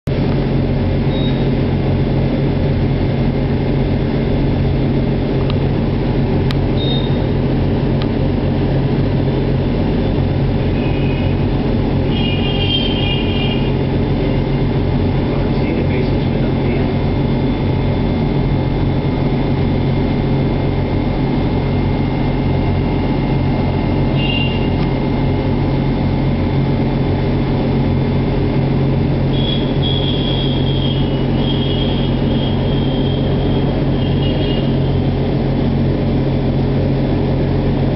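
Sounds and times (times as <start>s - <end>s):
low mechanical rumble and hum: 0.1s - 37.9s
short high-pitched tones: 6.8s - 7.3s.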